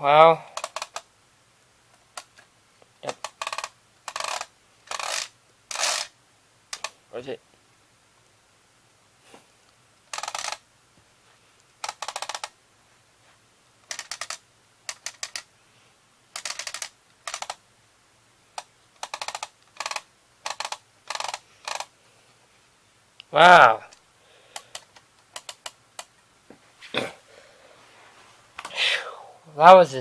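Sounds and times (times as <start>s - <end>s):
bursts of rapid clicking: 3.1s - 6.1s, 10.1s - 10.6s, 11.8s - 12.5s, 13.8s - 15.5s, 16.4s - 17.6s, 18.6s - 21.9s, 24.6s - 26.2s.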